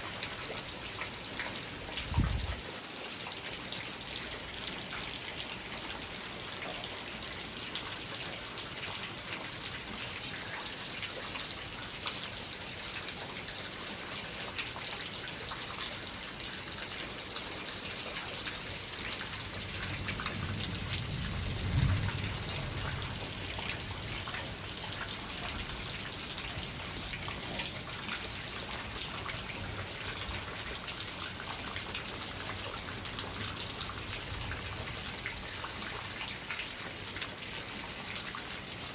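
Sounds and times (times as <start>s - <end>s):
rain falling: 0.0s - 38.9s
thunder rumble: 19.6s - 24.2s.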